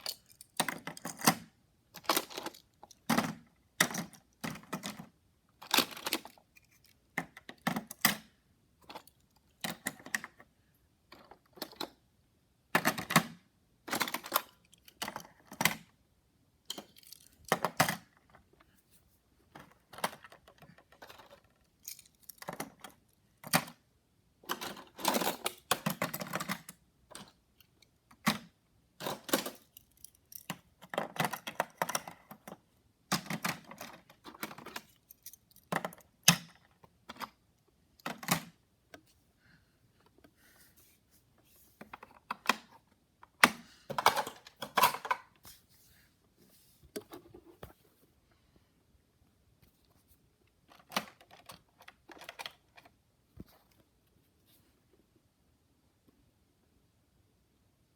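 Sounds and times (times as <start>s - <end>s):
toy cars clicking and clattering: 0.0s - 8.1s, 16.7s - 18.4s, 19.5s - 23.8s, 24.5s - 37.3s.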